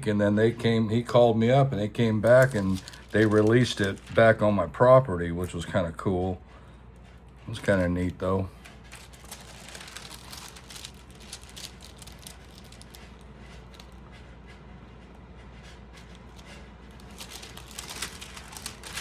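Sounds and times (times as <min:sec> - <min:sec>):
steady low hum: 0:00.0 - 0:19.0
album pages rustling: 0:02.0 - 0:04.5, 0:08.7 - 0:14.0, 0:16.3 - 0:19.0.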